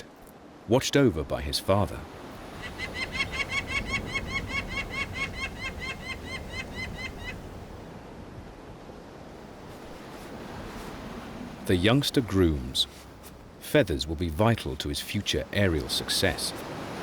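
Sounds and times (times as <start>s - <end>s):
falcon calling harsh notes: 2.6s - 7.4s.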